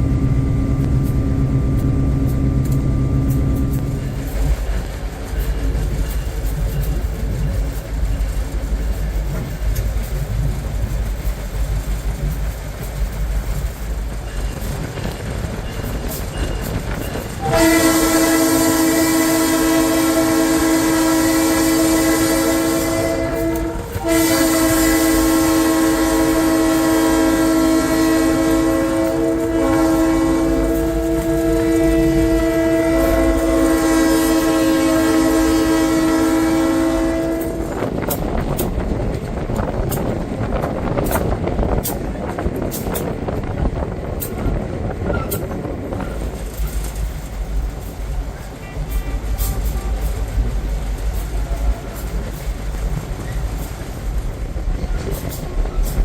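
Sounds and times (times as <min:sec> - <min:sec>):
diesel locomotive engine rumbling: 0:00.0 - 0:56.0
locomotive air horn blast: 0:17.4 - 0:37.9, 0:48.6 - 0:50.3.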